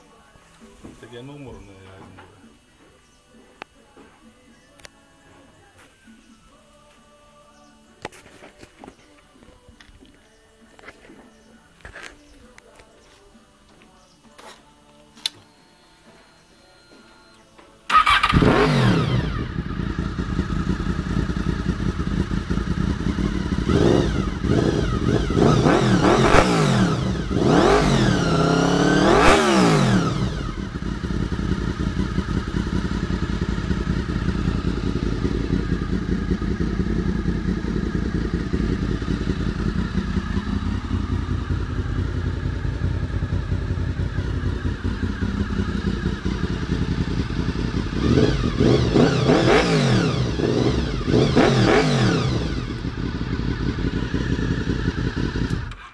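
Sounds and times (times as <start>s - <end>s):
motorcycle engine revving and idling: 17.9s - 55.9s.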